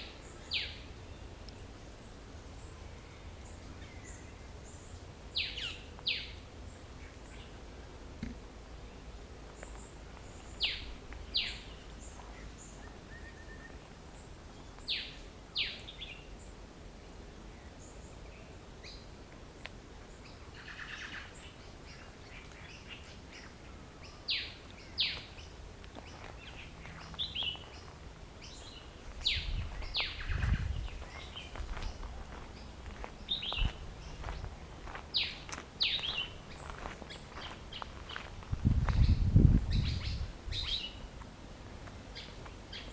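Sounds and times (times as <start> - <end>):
birds chattering and chirping: 0.0 - 42.9.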